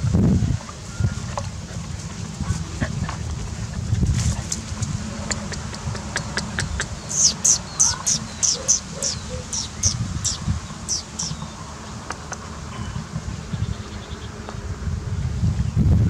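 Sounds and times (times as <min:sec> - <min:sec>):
bird calling high notes: 0:05.3 - 0:12.0.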